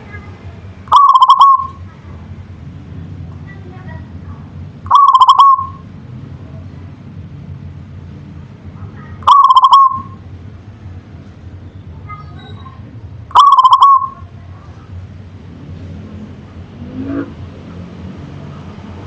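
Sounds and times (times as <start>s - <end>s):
dove cooing: 0.9s - 1.8s, 4.9s - 5.8s, 9.2s - 10.2s, 13.3s - 14.3s.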